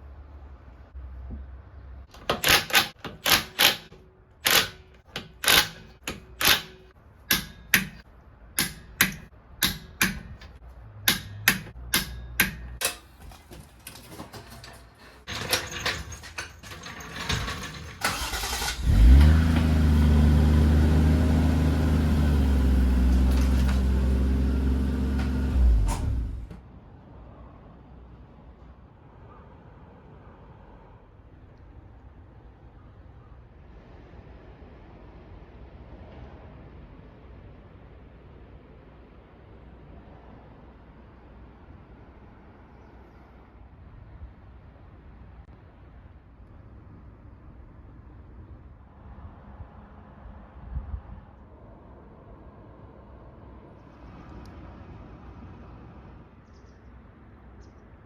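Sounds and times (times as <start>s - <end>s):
car engine cranking and idling: 2.1s - 26.6s.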